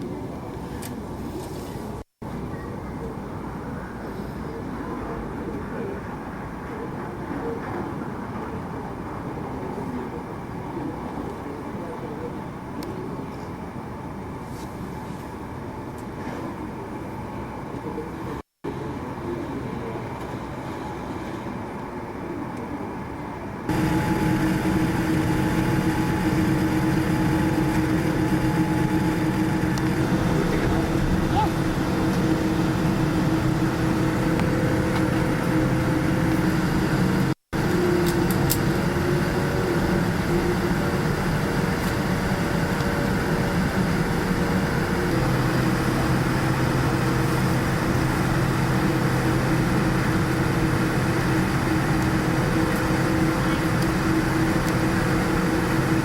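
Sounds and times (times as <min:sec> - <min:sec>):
airplane cabin hum: 0:13.6 - 0:56.0.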